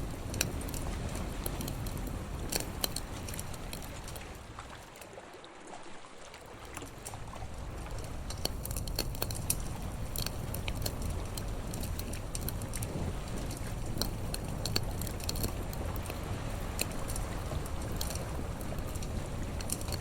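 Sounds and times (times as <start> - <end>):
low steady rumble: 0.0 - 5.0, 6.5 - 20.0
campfire crackling: 0.0 - 5.2, 6.4 - 20.0.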